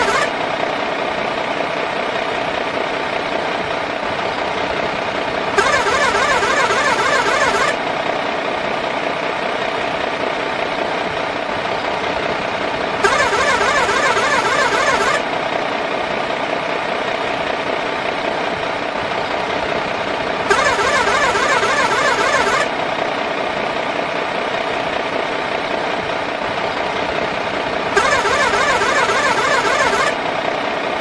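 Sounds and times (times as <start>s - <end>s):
toy truck motor whirring: 0.0s - 0.3s, 5.6s - 7.8s, 13.0s - 15.2s, 20.5s - 22.7s, 28.0s - 30.2s.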